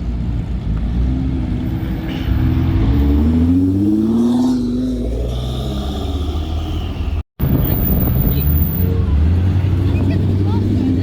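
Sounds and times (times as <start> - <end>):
car engine accelerating: 0.2 - 5.9.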